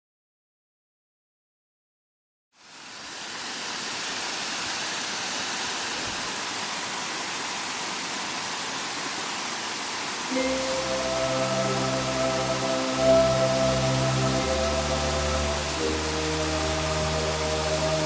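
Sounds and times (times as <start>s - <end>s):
waterfall rushing: 2.6s - 18.0s.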